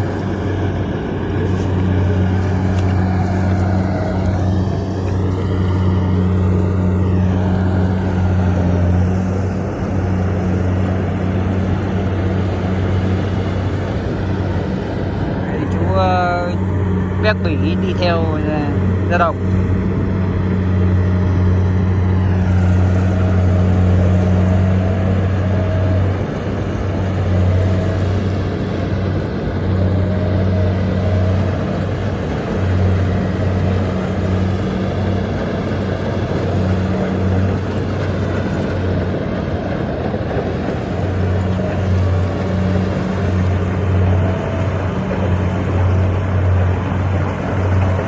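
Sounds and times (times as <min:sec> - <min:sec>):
diesel engine humming: 0:00.0 - 0:48.0.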